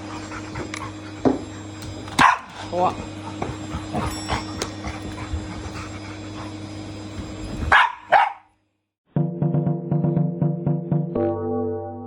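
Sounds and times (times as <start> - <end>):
vacuum cleaner humming: 0.0 - 8.4
dog barking: 2.1 - 2.8, 7.7 - 8.5
music: 9.1 - 12.0.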